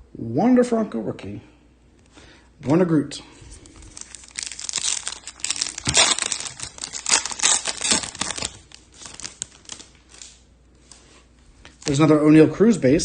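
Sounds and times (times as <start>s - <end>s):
wrappers and cards crinkling: 3.5s - 12.2s.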